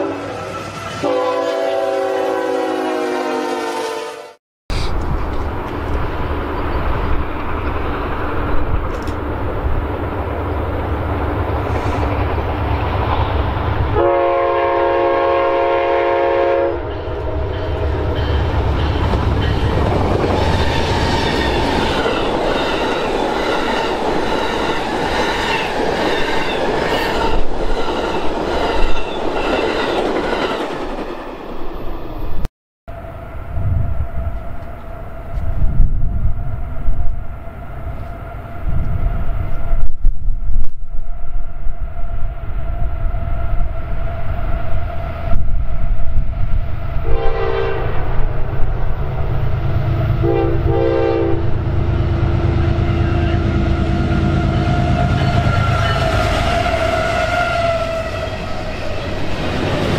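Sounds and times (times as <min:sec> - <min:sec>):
train air horn: 0:00.0 - 0:04.9, 0:13.9 - 0:17.2, 0:47.0 - 0:48.3, 0:50.1 - 0:51.6, 0:52.5 - 0:58.9
train rumbling past: 0:00.0 - 0:59.9.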